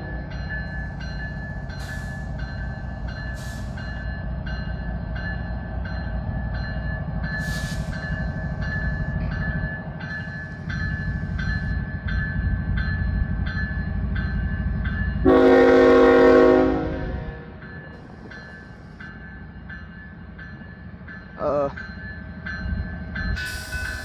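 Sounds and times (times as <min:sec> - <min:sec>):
crossing bell dinging: 0:00.0 - 0:24.0
diesel locomotive engine rumbling: 0:00.0 - 0:24.0
train air horn blast: 0:15.2 - 0:17.5.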